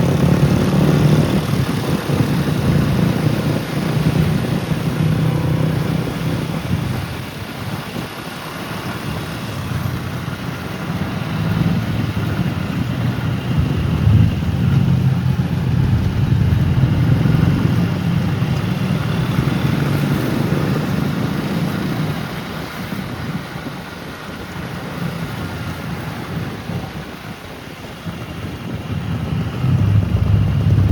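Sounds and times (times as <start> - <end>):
engine running with low hum: 0.0 - 30.9.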